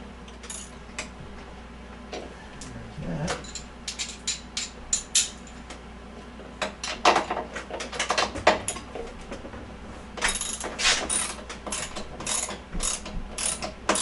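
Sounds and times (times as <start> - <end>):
ratchet wrench clicking: 10.3 - 14.0.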